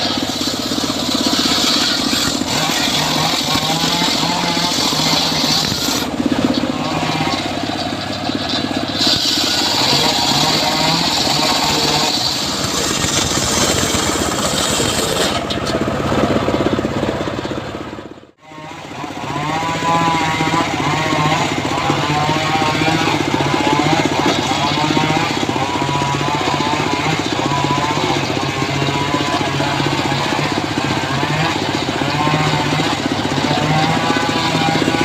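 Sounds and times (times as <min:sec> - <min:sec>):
saw blade hissing through timber: 0:00.0 - 0:15.5
sawmill engine running: 0:00.0 - 0:35.0.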